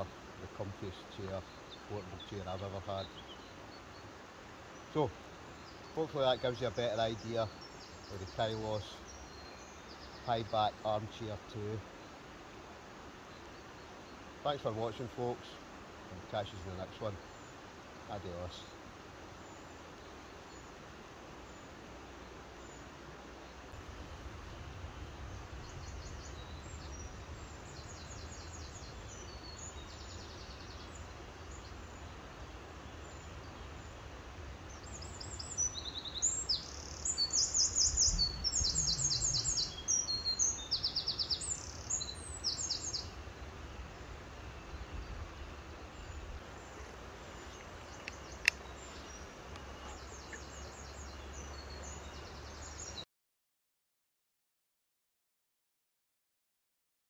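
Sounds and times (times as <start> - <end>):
small birds chirping and trilling: 0.0 - 23.9, 24.9 - 53.0
low outdoor background rumble: 18.9 - 52.8
sharp click: 48.0 - 48.6.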